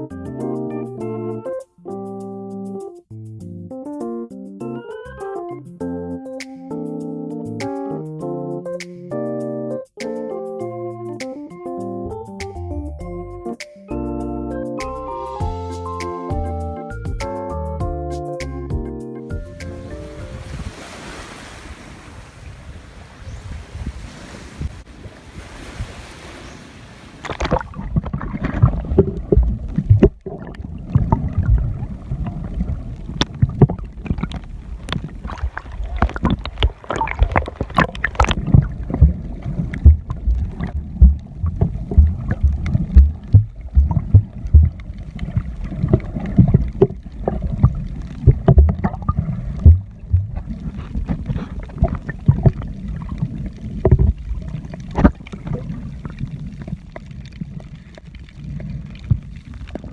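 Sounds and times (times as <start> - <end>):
wind on microphone: 19.4 - 56.8
sea water sloshing in surf: 19.6 - 59.9
muffled underwater gurgling: 27.2 - 59.9.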